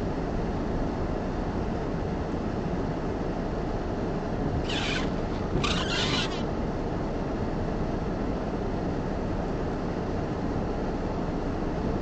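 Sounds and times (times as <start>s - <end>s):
short rasping noise: 4.6s - 6.5s.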